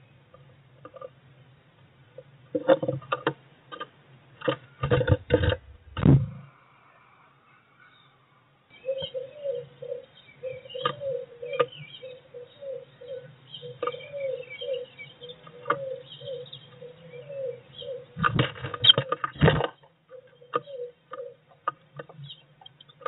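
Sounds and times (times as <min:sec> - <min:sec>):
bird tapping on wood: 0:02.6 - 0:06.3
low hum: 0:05.0 - 0:08.7
soft low notes: 0:05.1 - 0:08.4
bird scrabbling and fluttering: 0:18.2 - 0:19.9.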